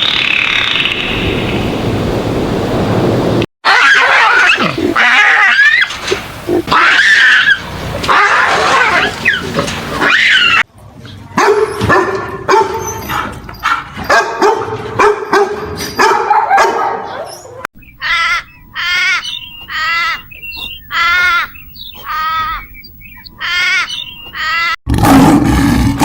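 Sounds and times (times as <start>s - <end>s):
shrill animal calls: 3.6s - 10.6s, 17.2s - 24.8s
steady pitched animal calls: 3.6s - 10.6s, 17.8s - 24.8s.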